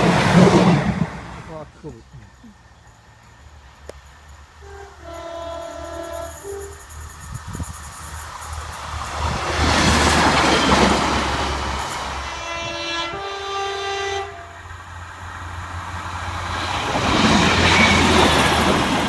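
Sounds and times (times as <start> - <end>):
train wheels on rails: 0.0 - 1.6, 2.9 - 13.6, 14.5 - 19.0
two-tone train horn: 4.6 - 6.8, 12.2 - 14.7.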